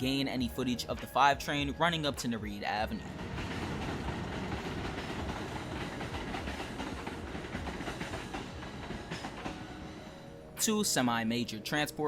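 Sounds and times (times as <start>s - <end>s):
subway train running on track: 2.2s - 11.7s.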